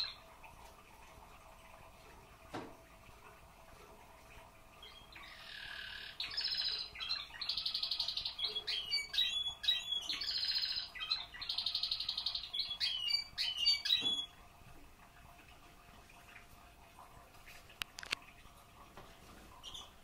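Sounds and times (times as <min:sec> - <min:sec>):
canary singing trills: 0:04.8 - 0:14.4, 0:19.6 - 0:20.0.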